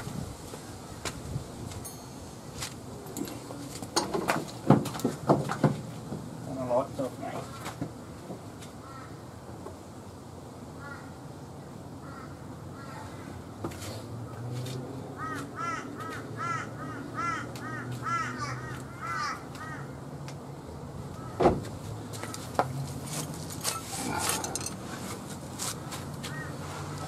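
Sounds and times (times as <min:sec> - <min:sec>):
bird cawing: 0:08.8 - 0:09.2, 0:10.8 - 0:11.2, 0:12.0 - 0:13.4, 0:15.2 - 0:20.0, 0:21.2 - 0:21.4, 0:26.2 - 0:26.6.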